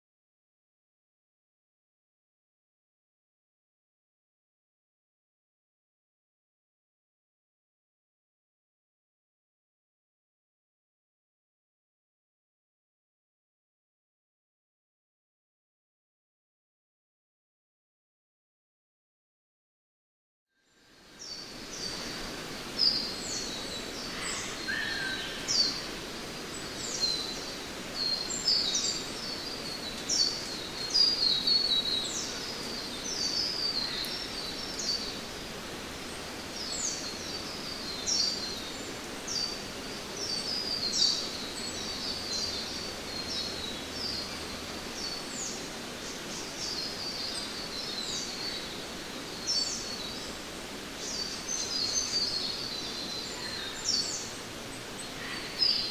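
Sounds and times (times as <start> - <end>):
birds chirping: 21.2 - 55.9
falling water rushing: 21.4 - 55.9
lower bird call: 23.0 - 26.0.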